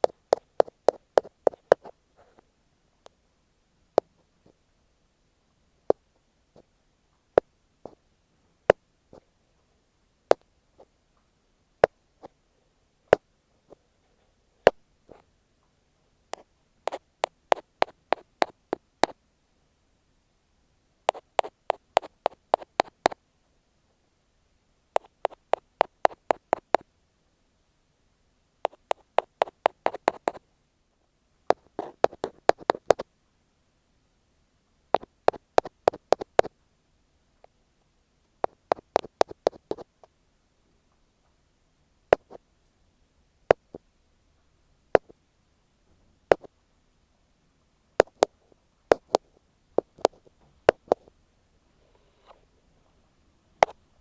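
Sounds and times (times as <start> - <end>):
ear pick tapping on microphone: 0.0 - 1.9, 16.9 - 19.2, 21.1 - 23.2, 25.0 - 26.8, 28.7 - 30.4, 31.5 - 33.0, 38.4 - 39.9, 48.0 - 49.2, 49.8 - 51.1.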